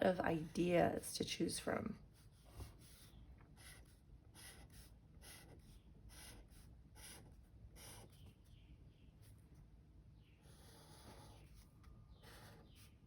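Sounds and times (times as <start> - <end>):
pen drawing on paper: 2.1 - 8.3, 10.4 - 13.0.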